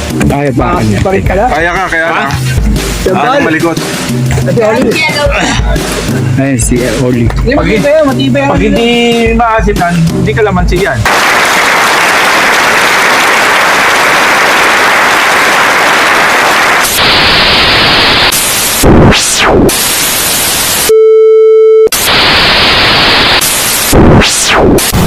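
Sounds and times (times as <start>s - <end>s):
tv static hiss: 13.0s - 20.9s, 21.9s - 25.0s
steady beep: 20.9s - 22.1s.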